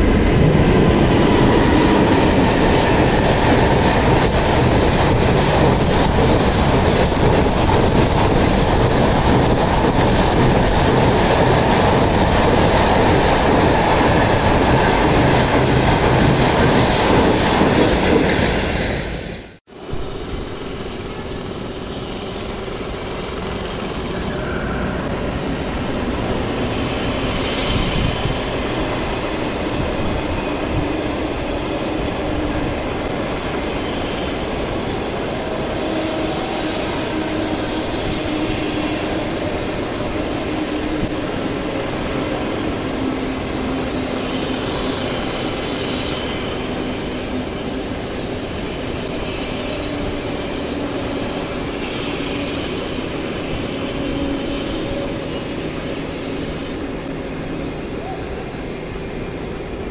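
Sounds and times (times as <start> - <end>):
passenger train rumbling past: 0.0 - 59.9.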